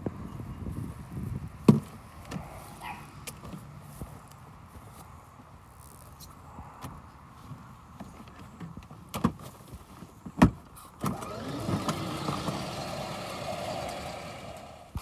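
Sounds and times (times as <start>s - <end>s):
small off-road engine revving: 11.0s - 15.0s.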